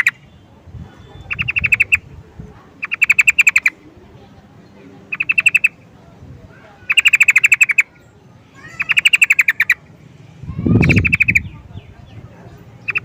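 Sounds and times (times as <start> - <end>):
bird chattering calls: 0.0 - 0.3, 0.9 - 2.1, 2.8 - 3.8, 5.1 - 5.8, 6.7 - 8.0, 8.6 - 9.9, 10.5 - 13.0.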